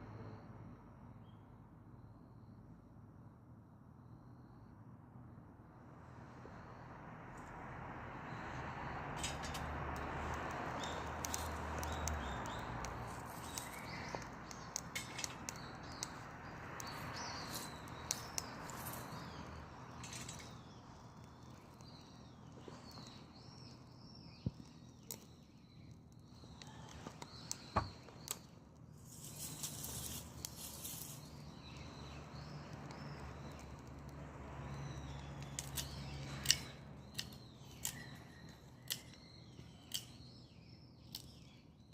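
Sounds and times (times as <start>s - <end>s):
twigs crackling and popping: 8.2s - 40.4s, 41.0s - 41.9s
birds chirping: 8.2s - 41.9s.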